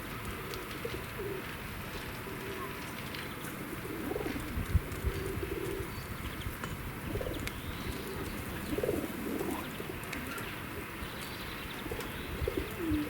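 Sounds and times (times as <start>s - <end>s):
pigeons cooing: 0.4s - 1.5s, 3.6s - 6.0s, 7.0s - 11.0s, 11.8s - 13.0s
small birds chirping: 5.5s - 13.0s.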